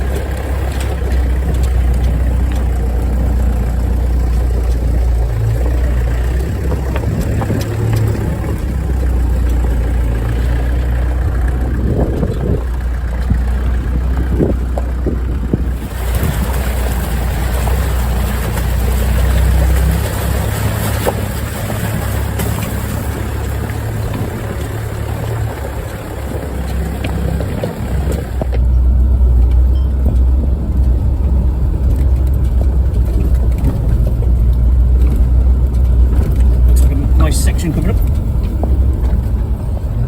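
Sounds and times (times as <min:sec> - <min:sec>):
tyres on stones: 0:00.0 - 0:13.7, 0:14.4 - 0:28.7
engine running at low revs: 0:00.0 - 0:40.0.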